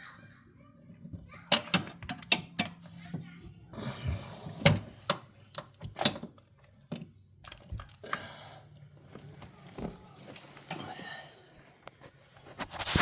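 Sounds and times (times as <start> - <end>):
hand tools clicking and knocking: 1.5 - 3.0, 4.6 - 8.4.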